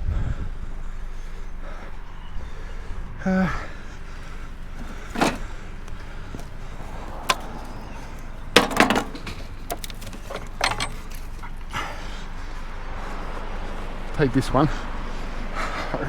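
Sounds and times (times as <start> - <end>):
scrap knocking and clanking: 4.7 - 11.6.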